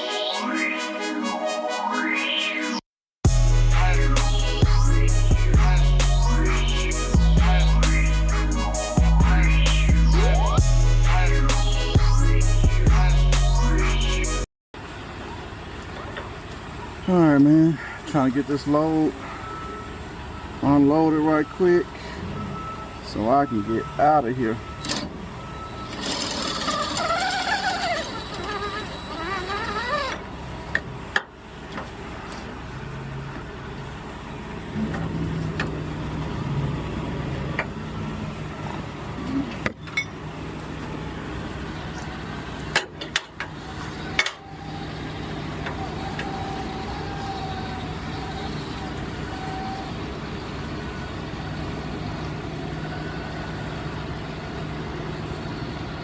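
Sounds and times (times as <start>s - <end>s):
heavy vehicle engine idling: 14.8s - 26.0s, 30.2s - 56.0s.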